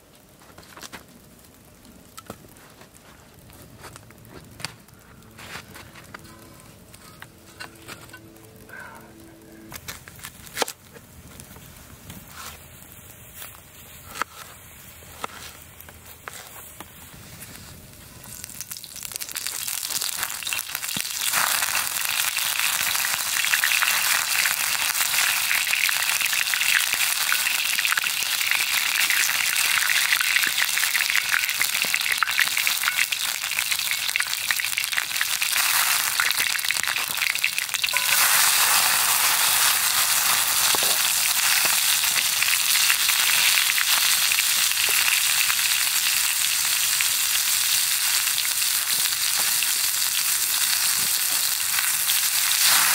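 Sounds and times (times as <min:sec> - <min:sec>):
meat sizzling in a skillet: 0:18.4 - 0:52.9.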